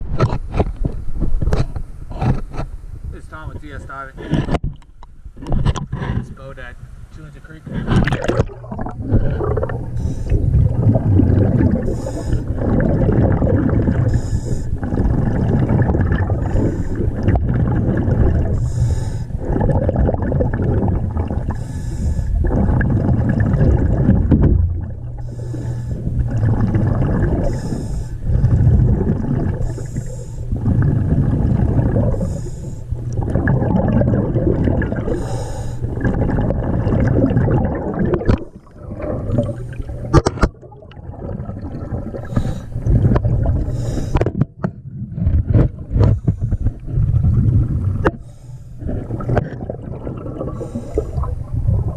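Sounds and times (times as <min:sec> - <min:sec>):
exhaled bubbles gurgling: 0:07.6 - 0:51.9
regulator inhale hiss: 0:09.9 - 0:10.7, 0:11.8 - 0:12.6, 0:14.0 - 0:14.8, 0:16.4 - 0:17.2, 0:18.5 - 0:19.4, 0:21.5 - 0:22.4, 0:25.2 - 0:26.2, 0:27.4 - 0:28.7, 0:29.6 - 0:30.6, 0:32.1 - 0:33.0, 0:35.1 - 0:35.9, 0:42.2 - 0:42.8, 0:43.6 - 0:44.2, 0:48.0 - 0:48.8, 0:50.5 - 0:51.3.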